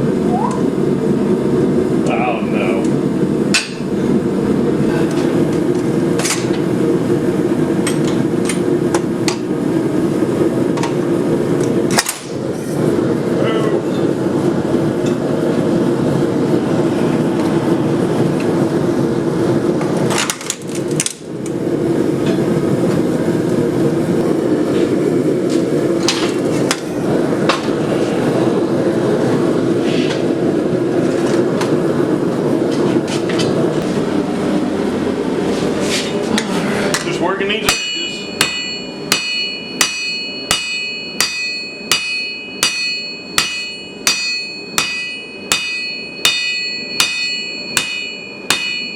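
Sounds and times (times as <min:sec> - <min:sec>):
hammer blows on anvil ringing: 0:37.7 - 0:48.9.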